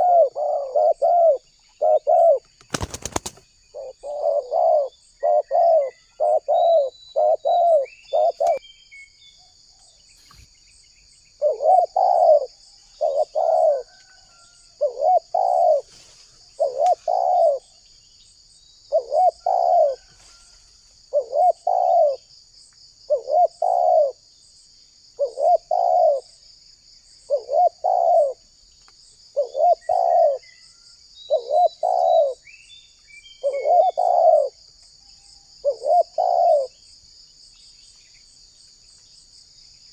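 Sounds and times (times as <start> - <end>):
dove cooing: 0.0 - 8.6, 11.4 - 15.9, 16.5 - 17.8, 18.9 - 20.2, 21.1 - 22.3, 23.1 - 24.2, 25.2 - 26.3, 27.3 - 28.4, 29.4 - 30.4, 31.3 - 32.4, 33.4 - 34.6, 35.6 - 36.8
faint small bird chirps: 0.0 - 26.4, 27.2 - 39.9.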